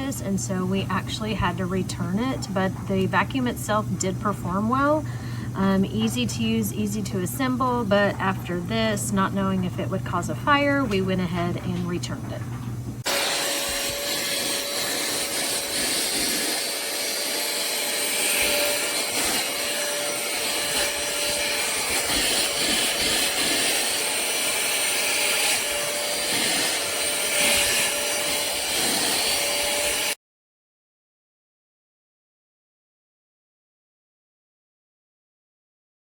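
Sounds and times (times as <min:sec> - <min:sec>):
handheld vacuum running: 0:13.0 - 0:30.2.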